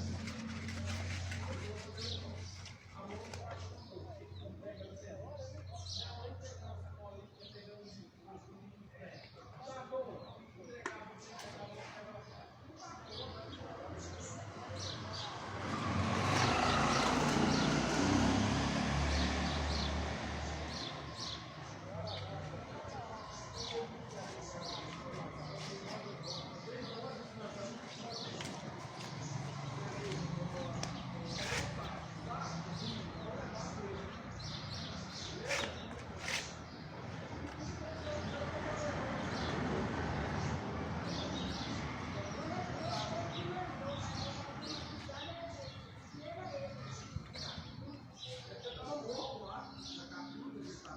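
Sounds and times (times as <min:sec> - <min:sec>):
motor vehicle passing by: 0:00.0 - 0:03.9, 0:13.8 - 0:48.0
birds chirping: 0:00.0 - 0:50.9
faint voices: 0:00.0 - 0:50.9.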